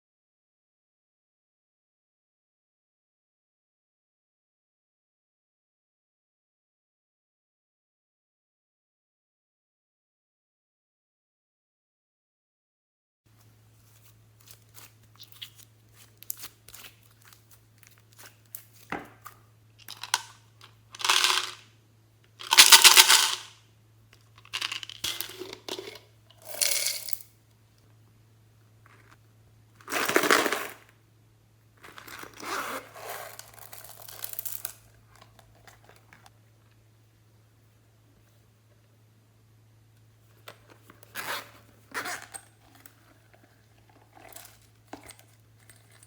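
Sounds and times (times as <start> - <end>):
faint electrical hum: 13.3 - 46.0.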